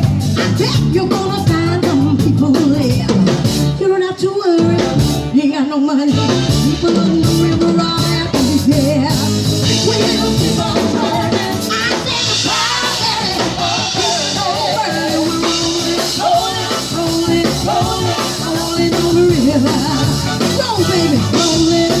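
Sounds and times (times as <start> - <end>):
rock band playing: 0.0 - 5.5, 6.1 - 22.0
person singing: 0.0 - 22.0.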